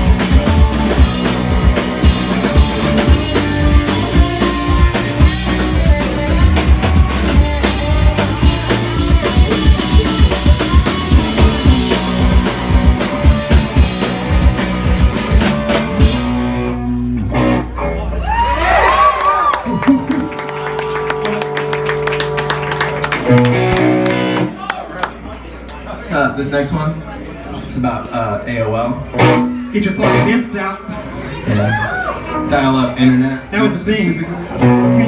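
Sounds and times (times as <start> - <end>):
loud driving drums: 0.0 - 17.6
live rock band playing: 0.0 - 24.6, 29.0 - 35.0.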